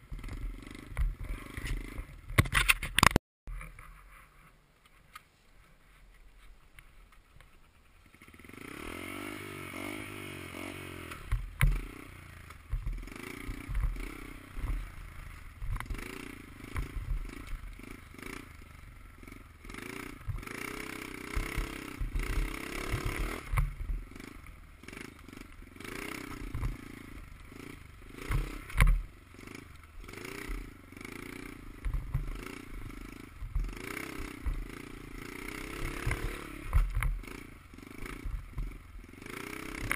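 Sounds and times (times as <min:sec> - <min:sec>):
dirt bike engine revving: 0:00.0 - 0:02.4, 0:08.0 - 0:39.9
thumps and rattles: 0:12.6 - 0:14.0, 0:33.4 - 0:34.7.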